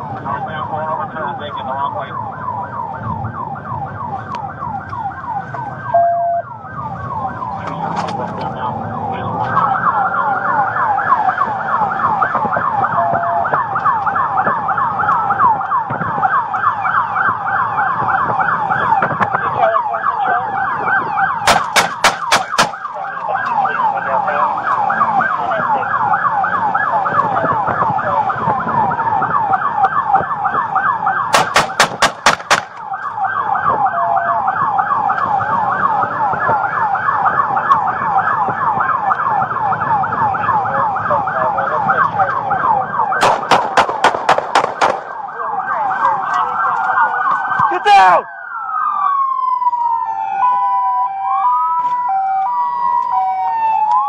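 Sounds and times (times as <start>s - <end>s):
police siren yelping: 0.0s - 54.0s
road and engine noise: 0.0s - 54.0s
sharp cracks: 21.4s - 23.0s, 31.3s - 33.1s, 43.2s - 45.2s.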